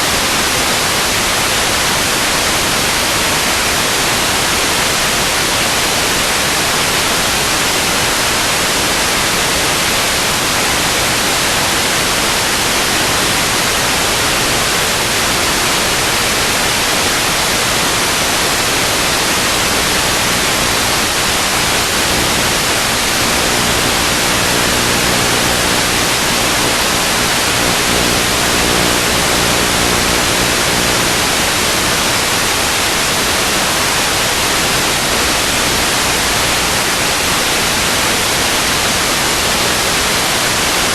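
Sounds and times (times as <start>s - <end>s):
static hiss: 0.0s - 40.9s
faint low hum: 19.6s - 32.3s.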